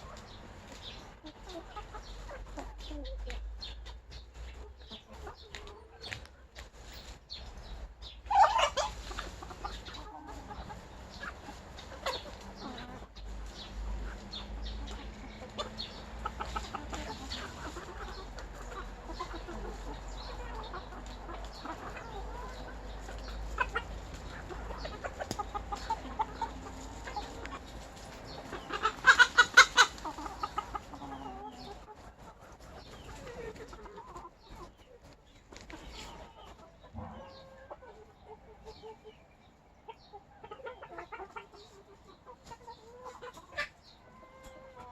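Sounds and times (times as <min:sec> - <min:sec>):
chickens clucking: 0:00.0 - 0:44.9
chicken squawk: 0:08.2 - 0:34.8.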